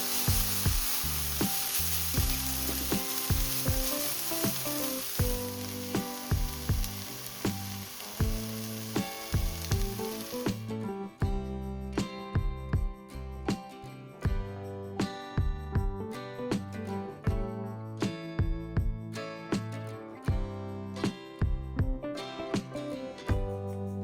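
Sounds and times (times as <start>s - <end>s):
stirring in a pan: 0.0s - 10.6s
peppers sizzling in a pan: 0.0s - 10.7s.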